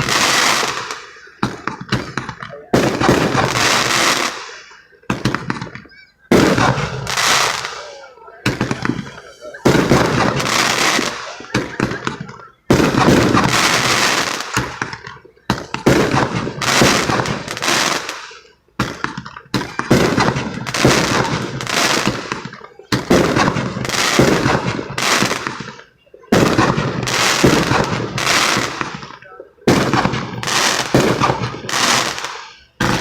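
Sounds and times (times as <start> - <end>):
fireworks banging and crackling: 0.0 - 33.0.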